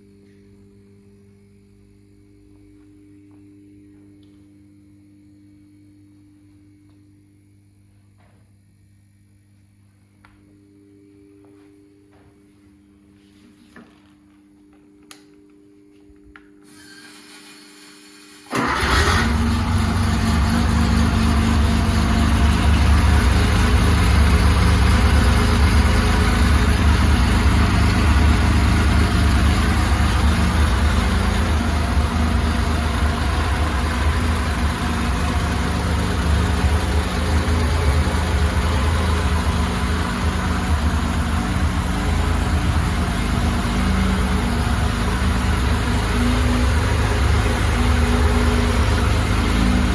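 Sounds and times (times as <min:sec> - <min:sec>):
car engine running: 0:18.6 - 0:49.9.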